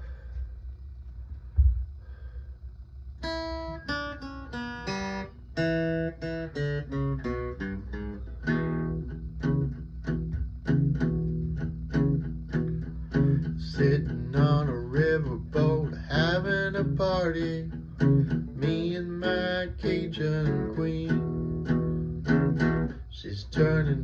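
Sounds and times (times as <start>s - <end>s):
thump: 1.5s - 1.9s
acoustic guitar fingerpicking: 3.2s - 24.0s.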